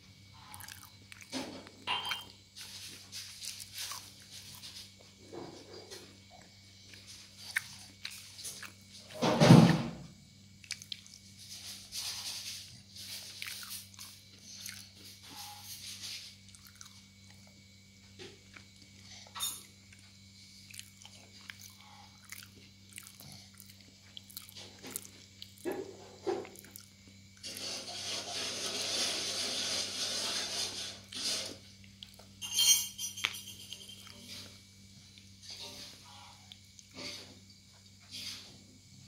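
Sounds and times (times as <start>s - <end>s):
steady low hum: 0.0s - 29.5s
toddler chewing crispy food: 0.3s - 9.1s, 10.6s - 17.5s, 18.4s - 30.6s.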